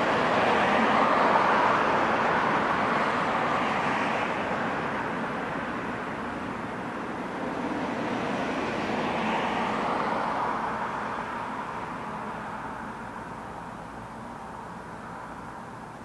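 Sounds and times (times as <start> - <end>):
vehicle road noise passing by: 0.0 - 16.0.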